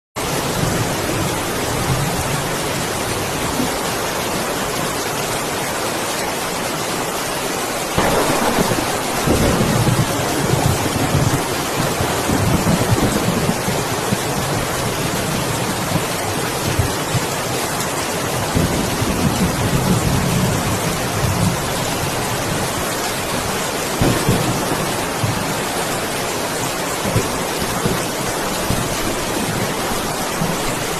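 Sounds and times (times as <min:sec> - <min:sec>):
steady rain falling: 0:00.2 - 0:30.9
thunder rumbling: 0:08.0 - 0:17.4, 0:18.3 - 0:30.9.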